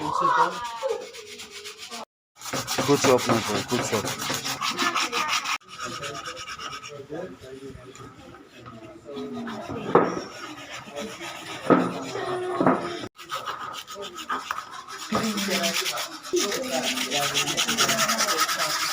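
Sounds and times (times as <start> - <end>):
sanding wood by hand: 0.0 - 18.9.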